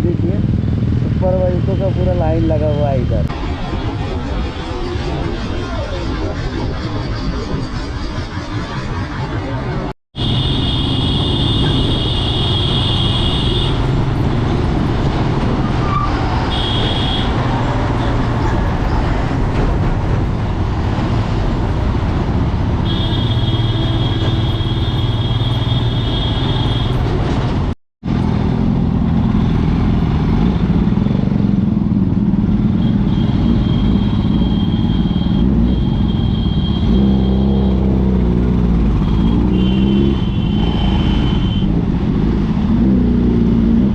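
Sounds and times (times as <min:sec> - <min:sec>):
traffic noise: 0:00.0 - 0:43.9
engine revving: 0:28.1 - 0:43.9.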